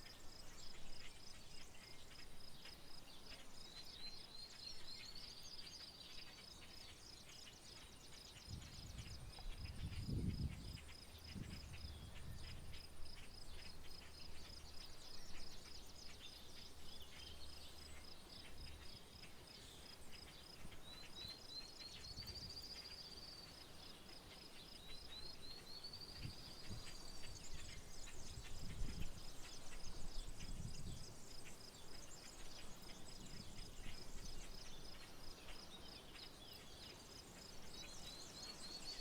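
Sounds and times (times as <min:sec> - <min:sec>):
bird singing a trill: 0:00.0 - 0:39.0.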